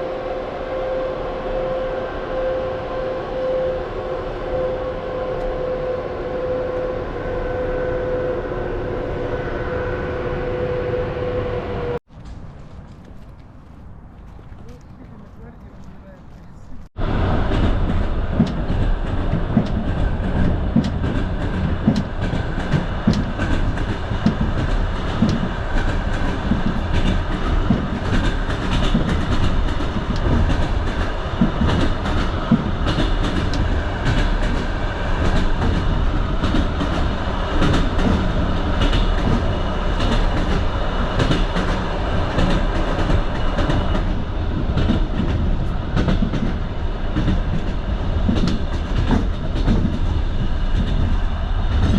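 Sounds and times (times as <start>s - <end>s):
train carriage rumble: 0.0s - 51.9s
wheels clicking over rail joints: 17.5s - 51.9s.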